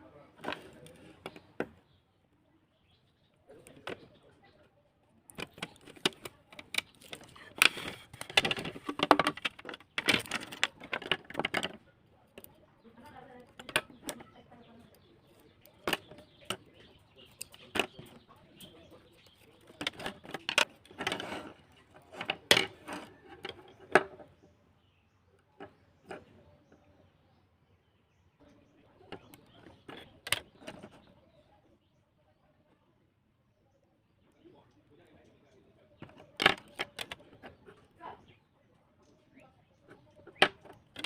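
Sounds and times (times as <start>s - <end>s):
small parts clicking and scraping: 0.4s - 1.7s, 5.3s - 24.4s, 29.0s - 31.1s, 36.0s - 38.2s, 39.9s - 41.0s.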